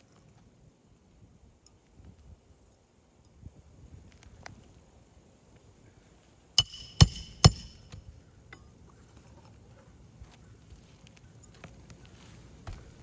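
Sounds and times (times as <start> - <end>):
hammer blows on nail: 6.6 - 8.0.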